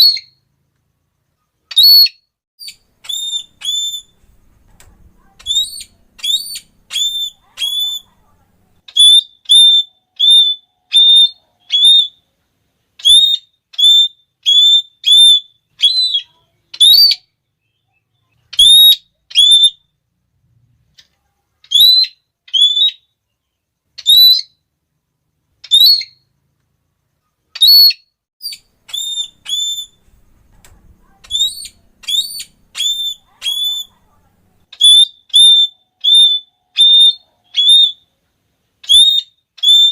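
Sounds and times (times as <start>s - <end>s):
parrot shrill calls: 0.0s - 0.4s, 1.7s - 4.2s, 5.2s - 8.1s, 8.9s - 12.2s, 13.0s - 17.3s, 18.5s - 19.9s, 21.6s - 23.1s, 24.0s - 24.6s, 25.6s - 26.2s, 27.6s - 30.1s, 31.0s - 34.0s, 34.7s - 38.1s, 38.8s - 39.9s.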